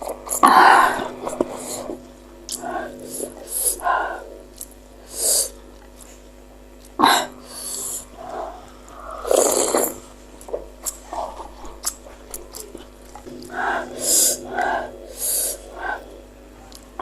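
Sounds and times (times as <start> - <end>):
slurps: 7.6 - 13.4
wet chewing: 8.2 - 13.6.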